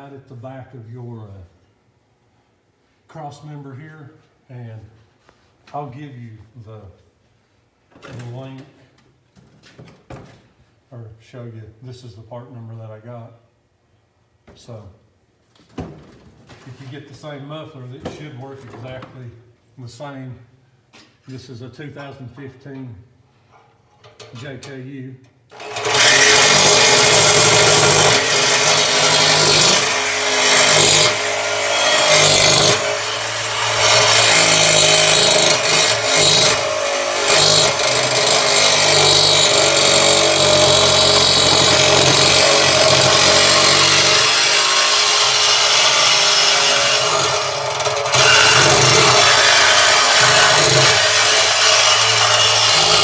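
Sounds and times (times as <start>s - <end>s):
power tool cutting steel pipe: 25.5s - 53.0s.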